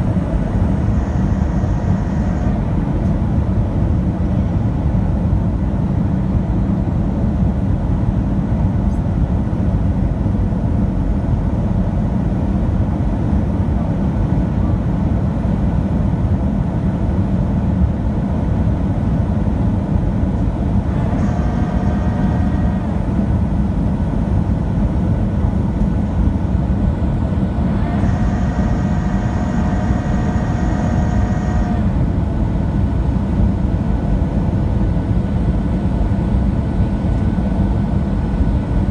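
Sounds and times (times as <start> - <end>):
steady high whine: 0.0 - 4.5, 19.9 - 38.9
airplane cabin rumble: 0.0 - 6.6, 18.2 - 38.9.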